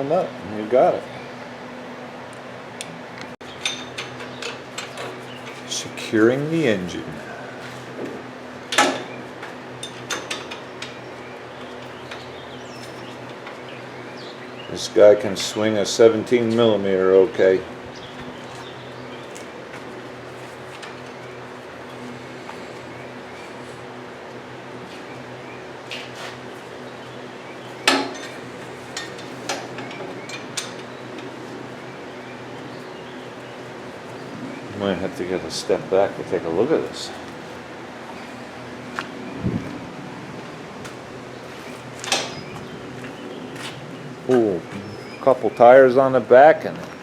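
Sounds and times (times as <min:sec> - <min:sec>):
steady low hum: 0:00.0 - 0:47.0
metal tools clinking on metal: 0:03.6 - 0:05.7.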